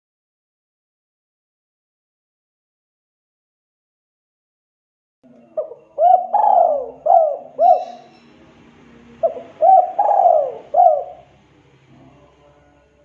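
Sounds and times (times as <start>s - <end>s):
dove cooing: 5.3s - 11.4s.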